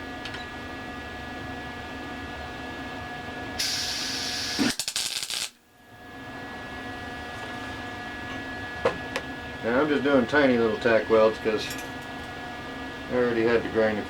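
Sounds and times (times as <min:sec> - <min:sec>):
steady machine hum: 0:00.0 - 0:14.0
welding arc hissing and crackling: 0:03.6 - 0:05.6.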